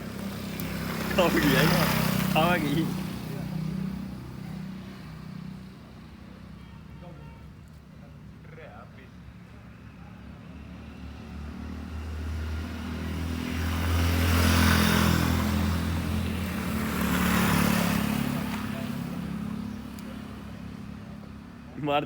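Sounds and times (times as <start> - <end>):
vehicle engine passing by: 0.0 - 5.8, 10.2 - 21.4.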